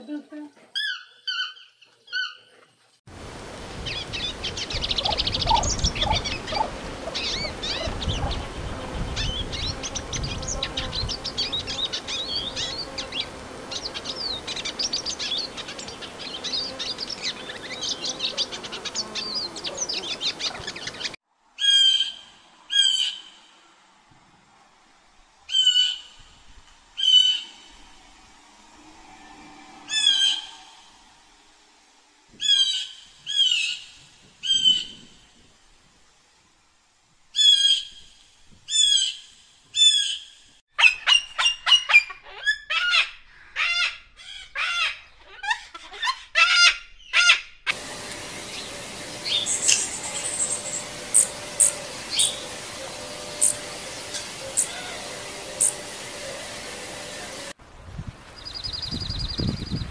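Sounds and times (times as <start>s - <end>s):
chorus of birds chirping: 3.8s - 23.4s, 28.8s - 31.1s, 46.9s - 57.6s.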